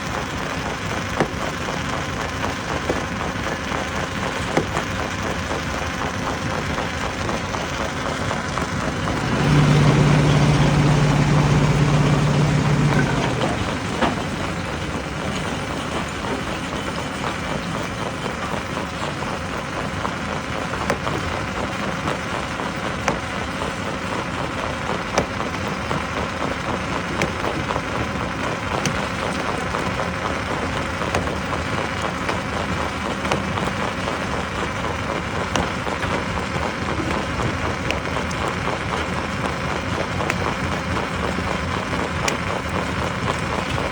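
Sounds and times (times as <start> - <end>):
loud low steady hum: 0.0 - 43.9
stone crusher rumbling: 8.0 - 19.3, 20.0 - 42.8.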